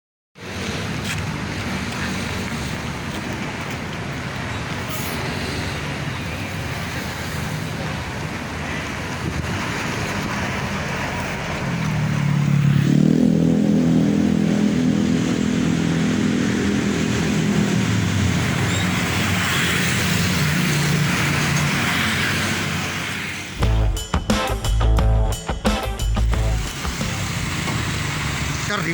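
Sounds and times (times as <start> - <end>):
road noise: 0.4 - 28.9
truck diesel engine running: 23.6 - 28.9.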